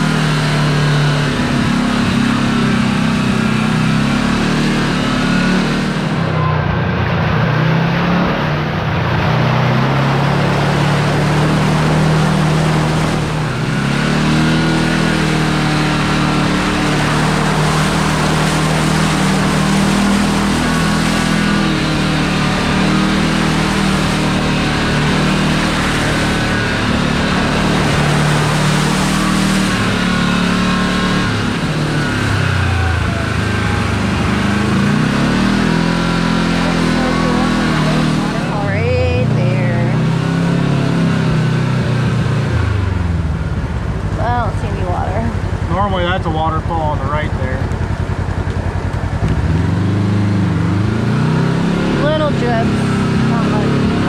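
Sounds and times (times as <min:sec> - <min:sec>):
off-road vehicle engine revving: 0:00.0 - 0:54.0
steady rushing noise: 0:05.8 - 0:33.4.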